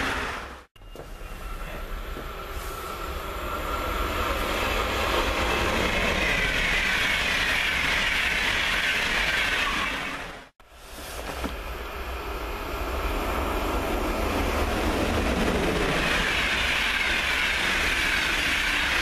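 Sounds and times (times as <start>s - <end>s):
train wheels rolling on rail: 0.0s - 19.0s.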